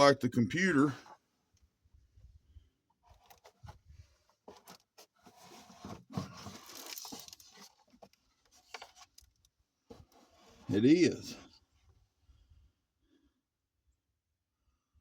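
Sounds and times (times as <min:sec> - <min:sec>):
rustling scraping: 0:03.1 - 0:09.2.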